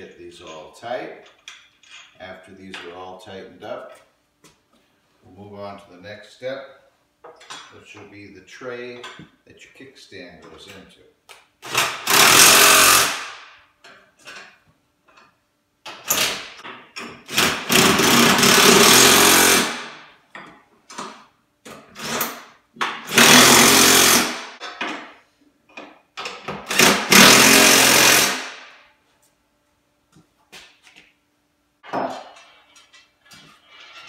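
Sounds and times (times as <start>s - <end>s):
impact wrench hammering: 11.7s - 13.6s, 16.2s - 20.0s, 22.1s - 25.1s, 26.2s - 28.7s.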